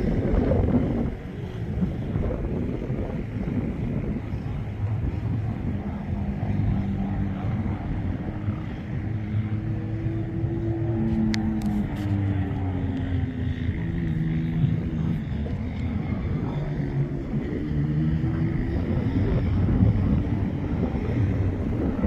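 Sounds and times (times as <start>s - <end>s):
off-road vehicle engines: 0.0s - 22.0s.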